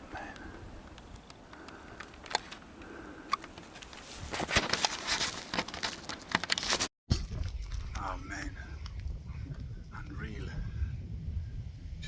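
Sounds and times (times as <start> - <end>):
rustling and crackling handling: 3.3 - 8.0.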